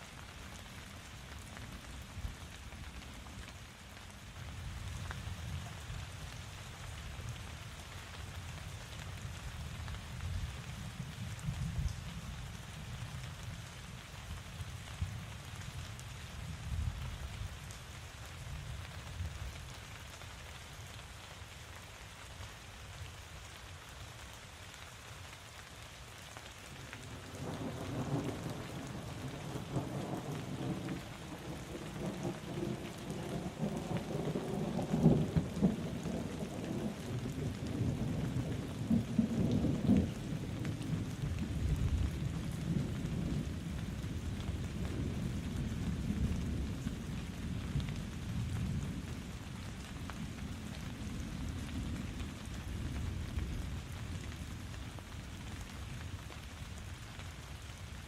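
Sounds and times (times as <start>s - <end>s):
steady rain falling: 0.0s - 58.0s
thunder rumbling: 27.2s - 49.3s.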